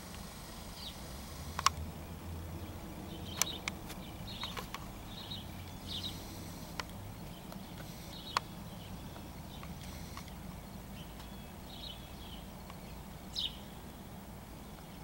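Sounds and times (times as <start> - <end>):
sharp clicks and taps: 1.6 - 1.8, 3.3 - 4.9
faint high bird chirps: 1.9 - 14.0.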